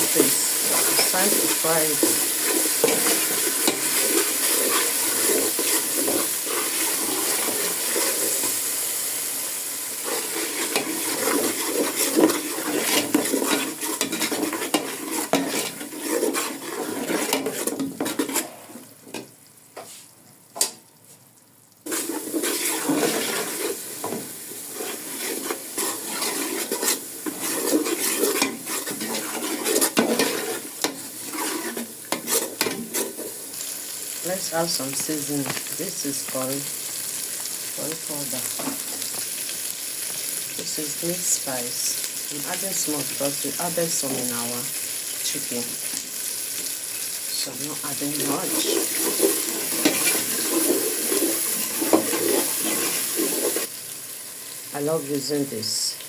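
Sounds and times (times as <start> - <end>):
spoon scraping against pot: 0.0 - 8.6, 10.0 - 18.7, 21.9 - 33.4, 48.0 - 53.7
onion sizzling in hot oil: 0.0 - 56.0.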